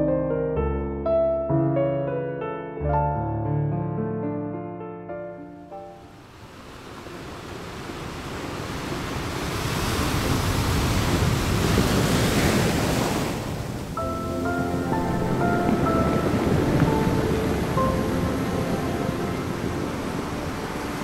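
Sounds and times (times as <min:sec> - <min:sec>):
soft piano notes: 0:00.0 - 0:06.2, 0:14.0 - 0:21.0
steady rushing noise: 0:06.3 - 0:21.0.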